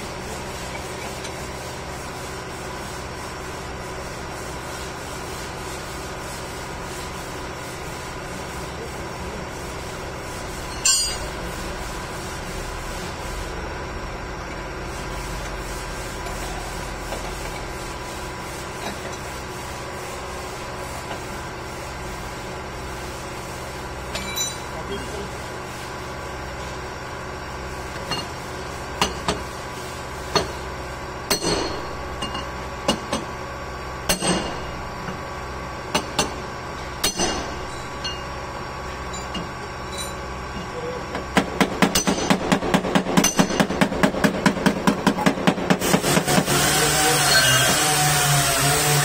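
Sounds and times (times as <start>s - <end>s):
running noise with wavering tone: 6.0s - 21.2s, 23.8s - 25.8s, 34.1s - 41.0s.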